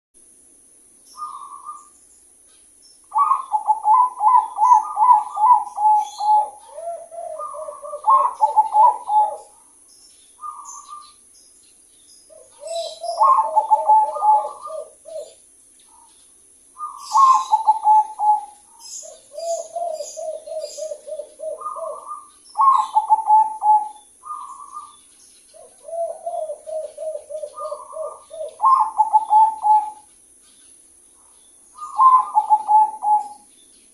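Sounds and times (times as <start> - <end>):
dove cooing: 1.2 - 1.9, 3.1 - 9.8, 10.4 - 11.1, 12.3 - 16.2, 16.8 - 30.1, 31.8 - 33.5.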